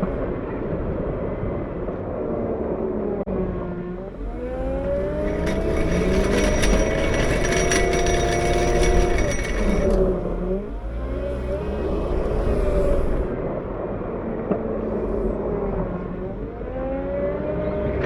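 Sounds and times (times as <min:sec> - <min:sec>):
wheel loader diesel engine revving: 0:03.9 - 0:13.5.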